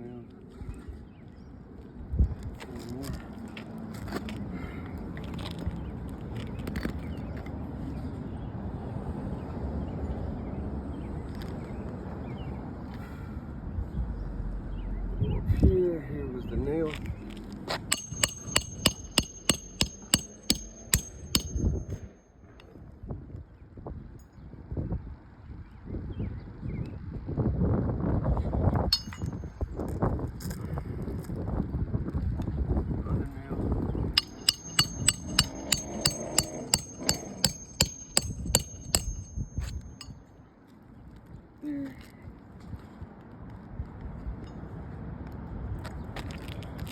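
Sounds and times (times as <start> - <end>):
hammer striking nails: 17.9 - 22.2, 29.0 - 29.4, 34.2 - 40.1.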